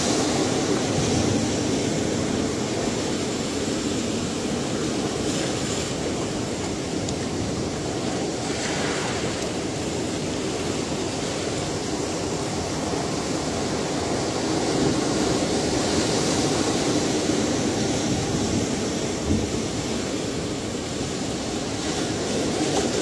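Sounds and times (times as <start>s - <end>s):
ocean waves washing ashore: 0.0s - 23.0s.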